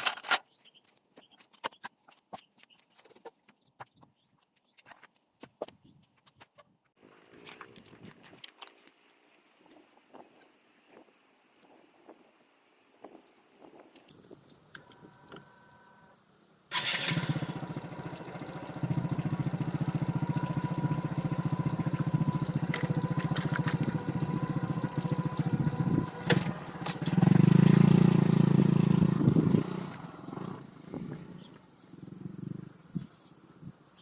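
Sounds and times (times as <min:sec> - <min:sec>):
motorcycle engine running: 0:16.7 - 0:33.0.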